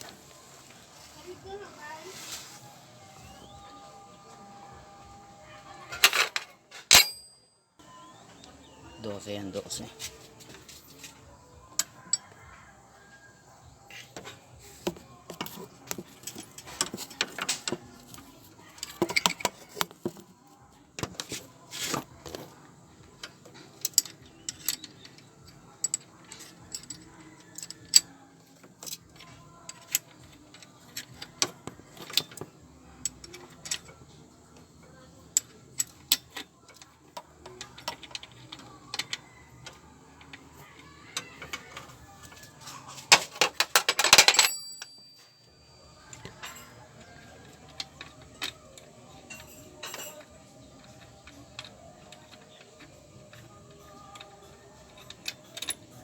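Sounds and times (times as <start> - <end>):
metal tools clinking on engine: 6.0 - 7.6, 42.6 - 56.0.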